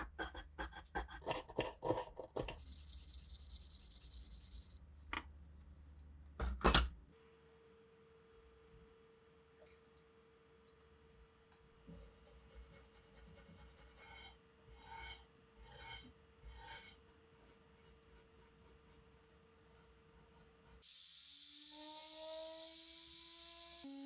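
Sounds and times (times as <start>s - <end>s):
hand abrasive scraping metal: 12.6s - 18.9s.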